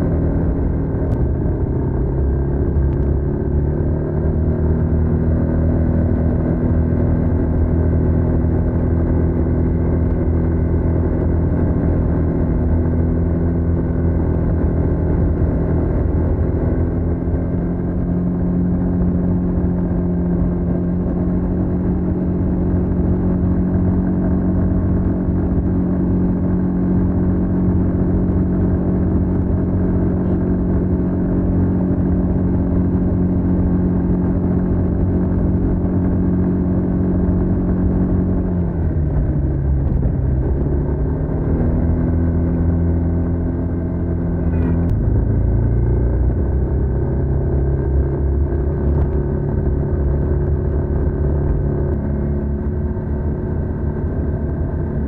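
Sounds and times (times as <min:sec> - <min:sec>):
scooter engine running: 0:43.5 - 0:46.7.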